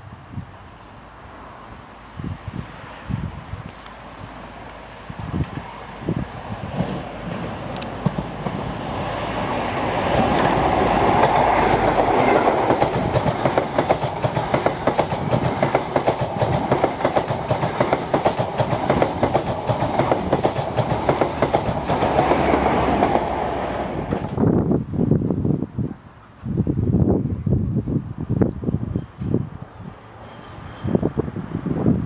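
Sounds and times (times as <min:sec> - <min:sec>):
train wheels clattering: 0:05.3 - 0:24.4.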